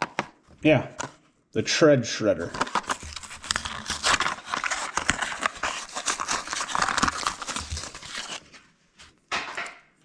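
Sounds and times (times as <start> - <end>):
plastic blister pack being torn open: 2.5 - 8.4.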